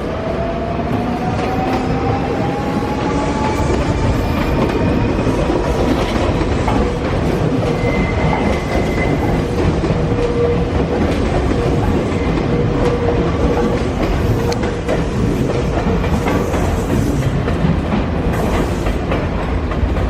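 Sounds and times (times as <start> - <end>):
train wheels clacking over rail joints: 3.4 - 20.0.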